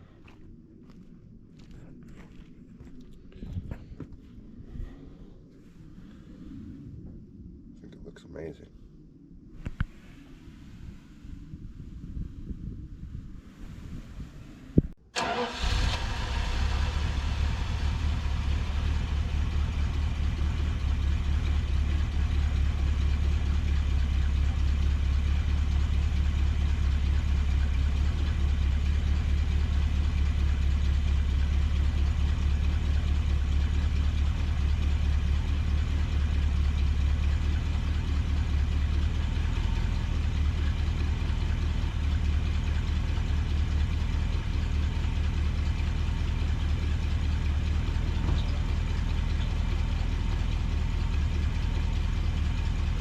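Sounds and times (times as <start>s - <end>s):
truck engine idling: 10.8s - 53.0s.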